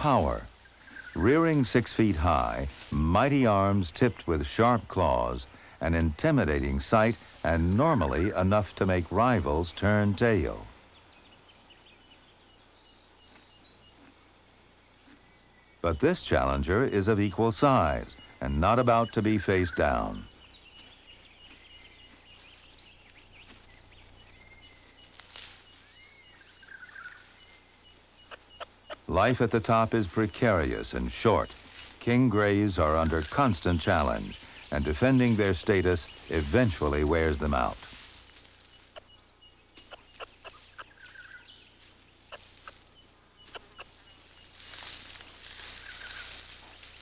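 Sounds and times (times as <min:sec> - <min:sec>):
noisy rustle: 0:00.0 - 0:12.0, 0:15.9 - 0:47.0
steady high hiss: 0:00.0 - 0:13.4, 0:22.3 - 0:47.0
birds chirping and whistling: 0:06.6 - 0:14.1, 0:14.8 - 0:47.0
rapidly repeated short bird note: 0:38.8 - 0:41.5.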